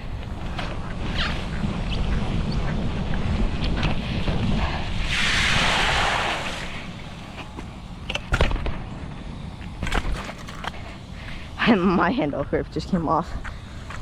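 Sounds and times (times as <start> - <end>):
wind rumbling on microphone: 0.0 - 11.8.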